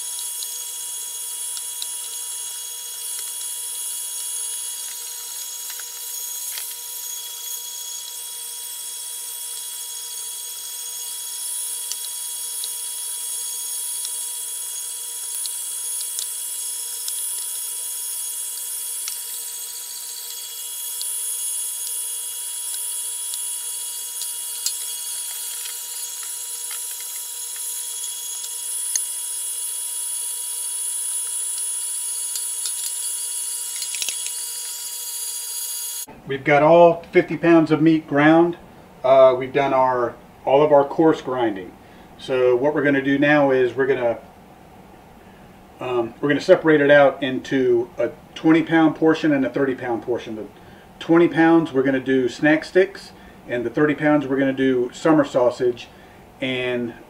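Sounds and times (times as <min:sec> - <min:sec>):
electric meat grinder whining: 0:00.0 - 0:36.1.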